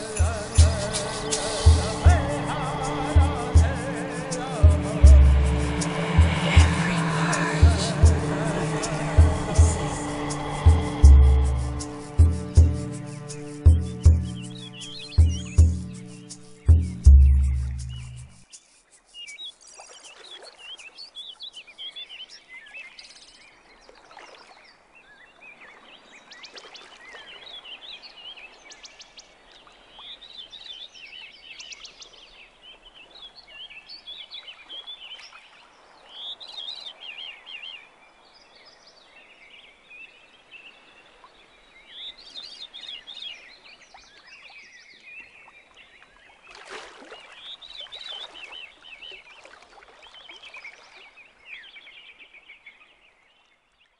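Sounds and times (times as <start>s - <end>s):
birds chirping: 0.0s - 18.6s
faint outdoor hiss: 0.0s - 23.9s, 27.2s - 53.9s.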